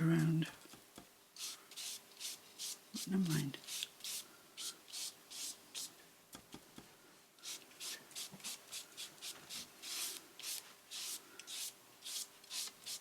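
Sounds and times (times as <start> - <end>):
brush strokes spreading glue: 1.4 - 6.0, 7.4 - 13.0.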